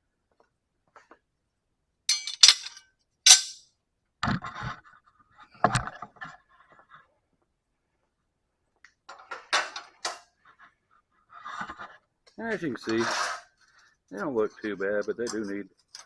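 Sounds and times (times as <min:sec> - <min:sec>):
ringing metallic clinks: 0:02.1 - 0:03.6
small rattles and scrapes: 0:09.2 - 0:16.0.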